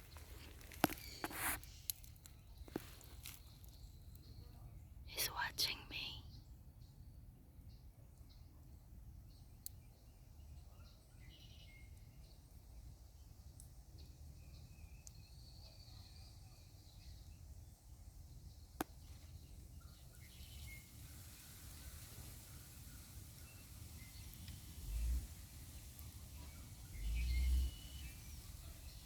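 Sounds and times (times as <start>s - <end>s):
faint bird chirps: 0.0s - 29.0s
faint high hiss: 18.2s - 29.0s.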